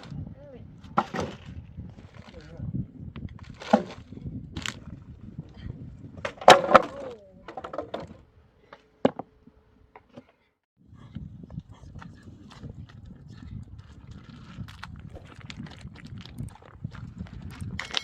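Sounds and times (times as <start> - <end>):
wood cracking and knocking: 0.9 - 2.3, 3.3 - 4.8, 6.2 - 8.2.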